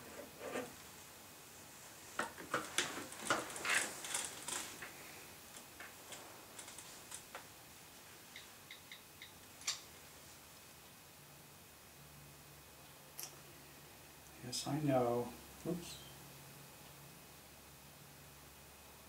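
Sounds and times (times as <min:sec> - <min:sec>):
irregular clicks and taps: 0:08.3 - 0:09.8.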